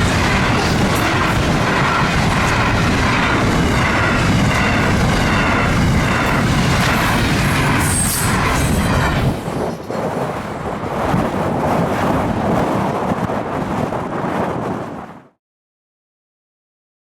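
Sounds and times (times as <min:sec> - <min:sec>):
freight train rolling past: 0:00.0 - 0:14.9
wind buffeting microphone: 0:00.0 - 0:15.4.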